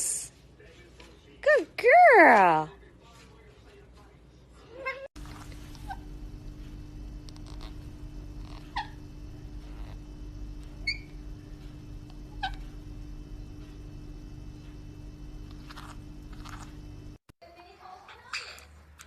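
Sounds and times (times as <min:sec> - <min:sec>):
steady low hum: 0:05.2 - 0:17.3.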